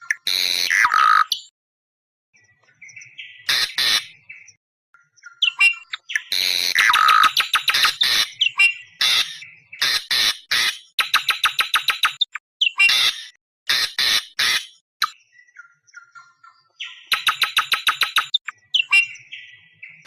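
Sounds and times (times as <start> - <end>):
harsh screeching bird calls: 0.0 - 1.5, 3.0 - 4.5, 5.3 - 15.2, 16.8 - 20.0
thin whistled bird notes: 4.1 - 6.3, 7.3 - 9.8, 15.0 - 20.0.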